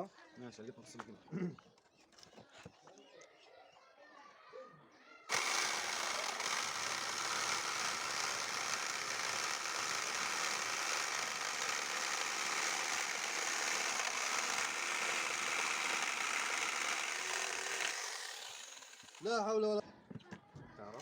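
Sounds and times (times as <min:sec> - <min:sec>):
air compressor running: 0:05.3 - 0:19.3.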